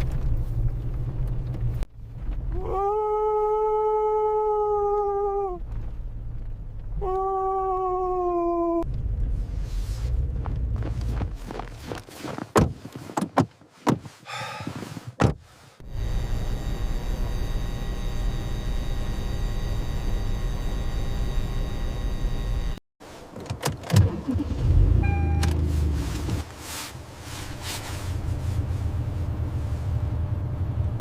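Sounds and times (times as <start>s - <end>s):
low rumble: 0.0s - 11.9s
mechanical hum with whine: 15.8s - 22.8s.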